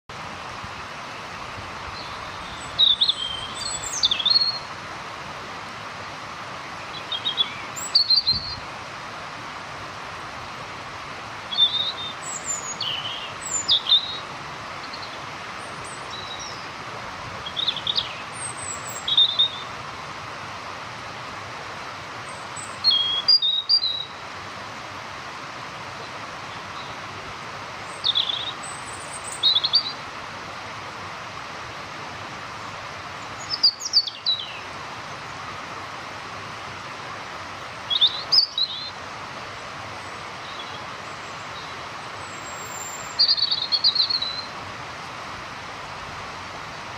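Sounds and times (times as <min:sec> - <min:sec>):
background hiss: 0:00.1 - 0:46.9
robin singing: 0:01.9 - 0:04.7, 0:06.8 - 0:08.6, 0:11.5 - 0:16.7, 0:17.4 - 0:19.8, 0:22.3 - 0:24.2, 0:27.8 - 0:30.0, 0:32.6 - 0:34.7, 0:37.8 - 0:39.0, 0:40.0 - 0:44.6.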